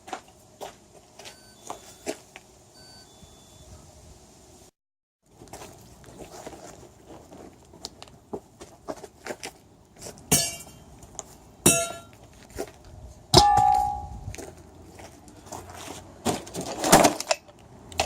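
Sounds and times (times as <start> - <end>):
loud metallic clangs: 13.4 - 14.2
metal objects clanking: 13.4 - 14.2.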